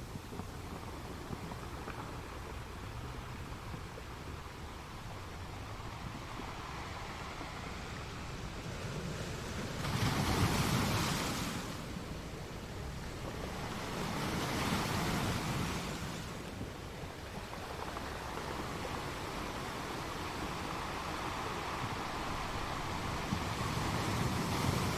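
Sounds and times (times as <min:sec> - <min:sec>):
steady rushing noise: 0:10.5 - 0:24.9.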